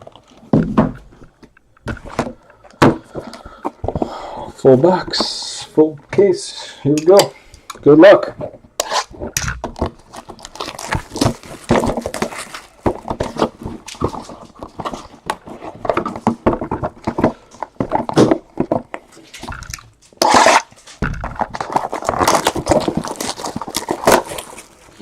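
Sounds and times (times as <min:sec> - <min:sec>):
plastic wrap and cardboard crinkling: 0:09.1 - 0:25.0
packaging tearing: 0:09.8 - 0:15.1, 0:21.4 - 0:25.0.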